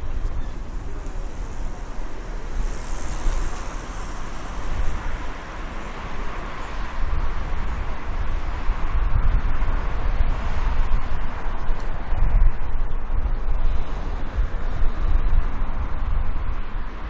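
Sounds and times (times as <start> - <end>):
wind buffeting microphone: 0.0 - 17.0
rushing hiss: 0.6 - 5.8.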